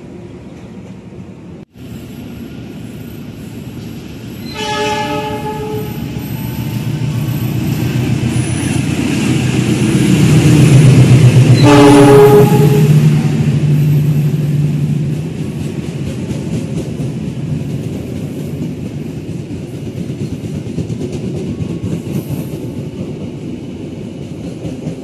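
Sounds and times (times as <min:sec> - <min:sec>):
locomotive engine and wheels rumbling: 0:00.0 - 0:25.0
locomotive horn: 0:04.4 - 0:06.1, 0:11.6 - 0:13.1.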